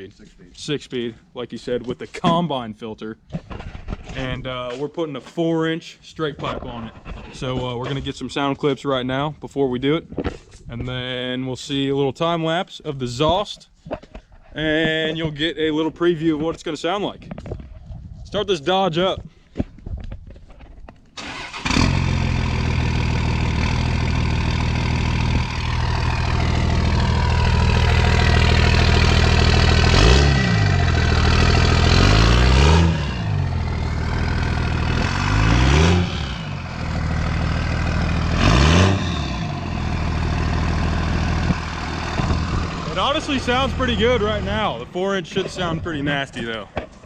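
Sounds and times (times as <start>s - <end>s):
diesel engine revving: 21.2s - 45.8s
diesel engine starting and idling: 21.2s - 45.8s.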